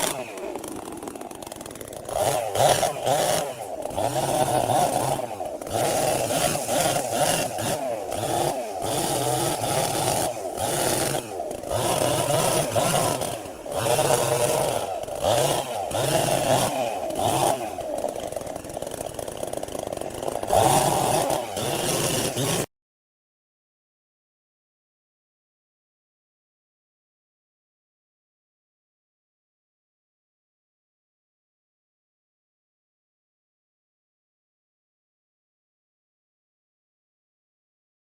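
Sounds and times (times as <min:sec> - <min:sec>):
chainsaw cutting wood: 0:00.0 - 0:22.7.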